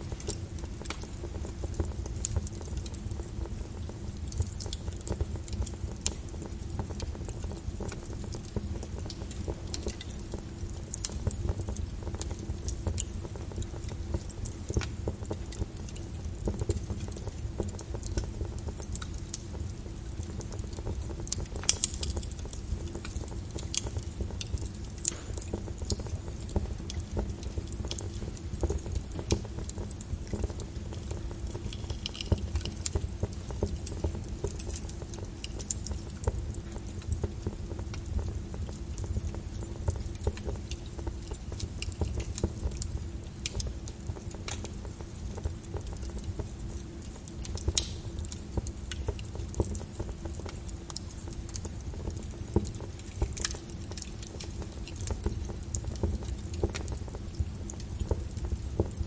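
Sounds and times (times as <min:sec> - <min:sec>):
low rumble of flames: 0:00.0 - 0:59.0
wood fire crackling and popping: 0:00.0 - 0:59.0.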